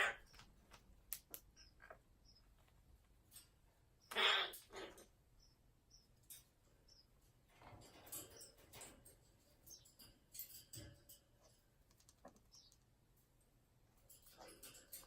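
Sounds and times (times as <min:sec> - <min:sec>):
faint clicking and scratching: 0:00.2 - 0:03.9, 0:06.0 - 0:15.0.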